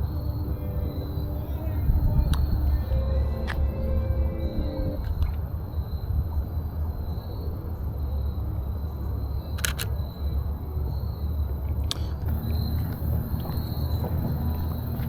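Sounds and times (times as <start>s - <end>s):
faint high tone: 0.0s - 5.5s
low rumble: 0.0s - 6.3s
camera shutter double click: 9.6s - 10.0s.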